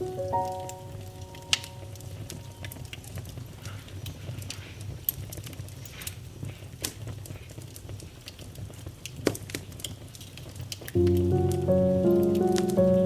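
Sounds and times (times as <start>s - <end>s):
piano music: 0.0s - 3.2s, 11.0s - 13.0s
wood fire crackling: 0.0s - 13.0s.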